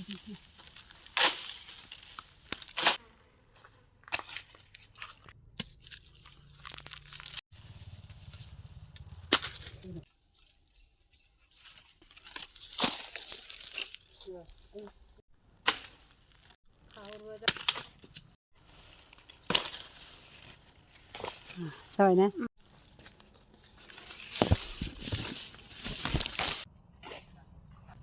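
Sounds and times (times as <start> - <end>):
twigs snapping: 0.0 - 3.0, 4.1 - 7.4, 8.9 - 9.8, 11.7 - 14.9, 15.7 - 21.7, 22.6 - 26.7
leaves and twigs rustling: 0.0 - 27.2.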